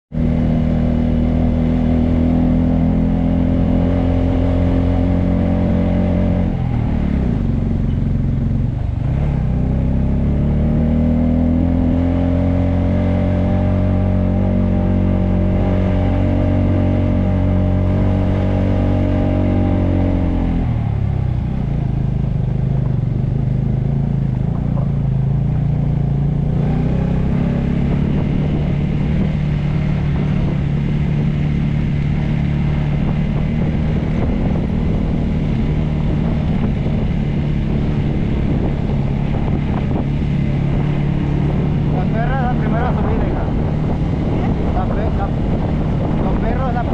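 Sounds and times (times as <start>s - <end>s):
motorcycle engine running: 0.1s - 46.9s.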